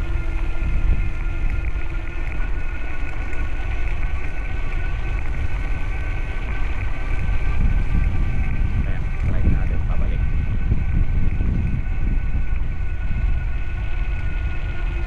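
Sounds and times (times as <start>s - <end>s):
bicycle rolling rumble: 0.0s - 15.0s
faint high whine: 0.0s - 15.0s
wind buffeting microphone: 0.0s - 15.0s.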